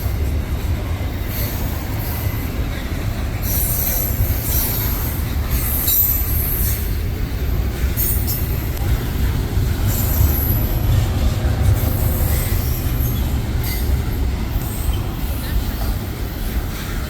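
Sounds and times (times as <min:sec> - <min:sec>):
train rumbling past: 0:00.0 - 0:17.0
high wheel squeal: 0:03.4 - 0:07.0, 0:07.8 - 0:17.0.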